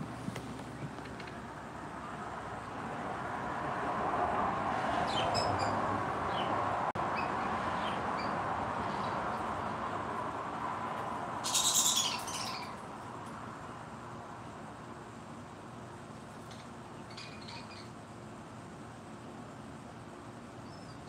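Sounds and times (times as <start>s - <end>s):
small birds chirping: 4.9s - 9.9s, 11.3s - 14.6s, 16.2s - 18.2s, 20.3s - 21.0s
steady background hiss: 8.4s - 21.0s.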